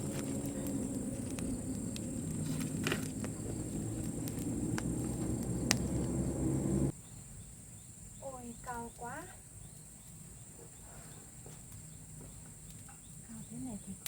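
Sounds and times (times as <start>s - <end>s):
high insect buzz: 0.0s - 6.9s
low uneven rumble: 0.0s - 6.9s
sharp clicks and snaps: 0.0s - 6.9s.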